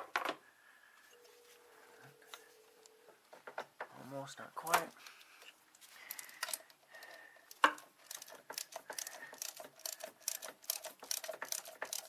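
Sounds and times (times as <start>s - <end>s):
socket ratchet clicking: 7.5s - 12.0s.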